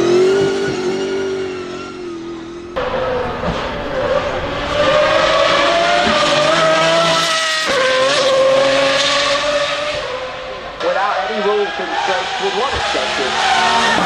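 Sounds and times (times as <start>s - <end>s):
car engine steady high note: 0.0s - 14.0s
racing car engine running hard: 0.0s - 14.0s.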